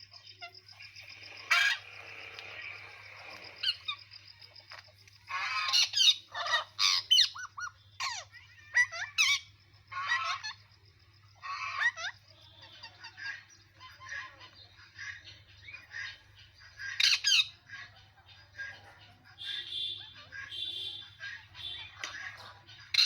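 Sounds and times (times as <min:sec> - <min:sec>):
parrot squawking: 0:01.3 - 0:04.0, 0:05.3 - 0:10.6, 0:11.4 - 0:16.2, 0:16.8 - 0:18.0, 0:18.6 - 0:23.0.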